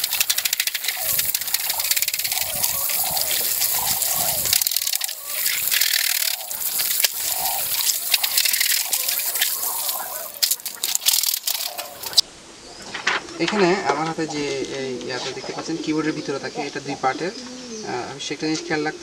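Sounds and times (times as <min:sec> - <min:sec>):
water running and splashing: 0:00.0 - 0:12.2.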